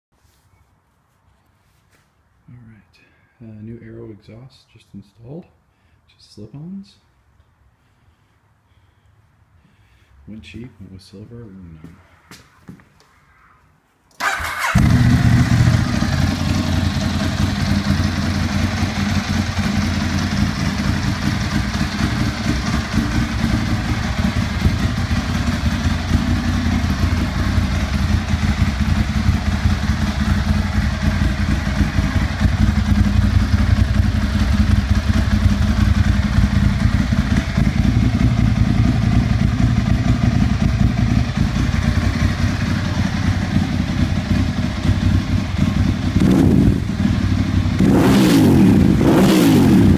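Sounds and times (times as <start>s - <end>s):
motorcycle engine idling loudly: 14.2s - 49.9s.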